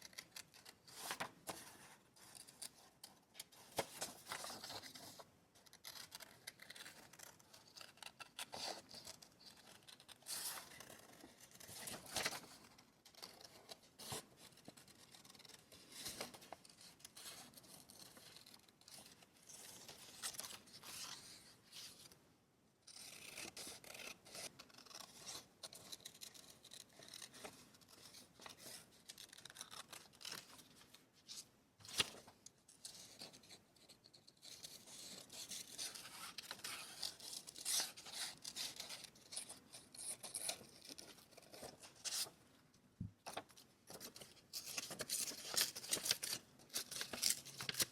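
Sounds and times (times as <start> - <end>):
paper rustling: 0.0 - 5.3, 5.9 - 22.2, 43.2 - 47.9
scissors snipping paper: 29.1 - 30.5.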